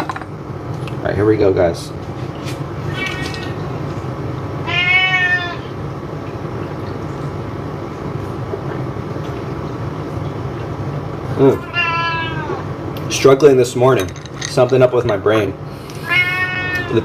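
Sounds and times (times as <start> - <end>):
low background hum: 0.0 - 17.0
cat meowing: 2.9 - 3.6, 4.6 - 5.7, 11.6 - 12.6, 16.0 - 17.0.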